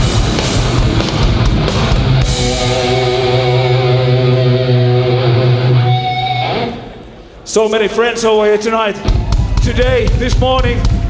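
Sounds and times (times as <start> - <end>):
distorted guitar and bass chord: 0.0 - 7.0
punk band playing live: 0.0 - 7.0, 9.0 - 11.0.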